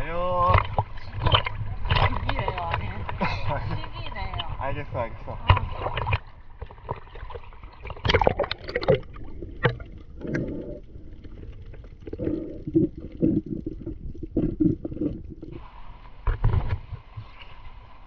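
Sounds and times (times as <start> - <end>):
muffled underwater bubbling: 0.0 - 4.6, 5.2 - 17.2
water splashing: 0.0 - 18.0.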